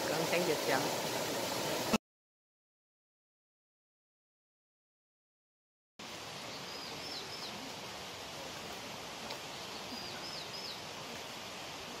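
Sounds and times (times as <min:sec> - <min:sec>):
outdoor background hiss: 0:00.0 - 0:02.0, 0:06.0 - 0:12.0
songbird singing: 0:06.4 - 0:07.8, 0:08.8 - 0:11.2.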